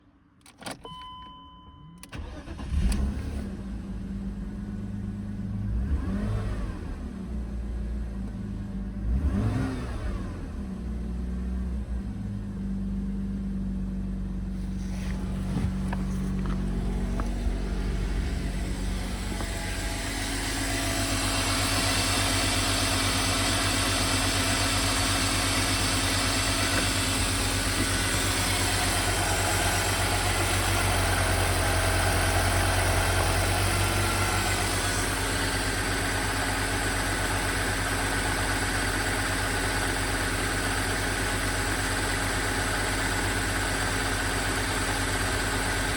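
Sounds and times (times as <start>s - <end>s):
car engine idling: 13.0s - 45.9s.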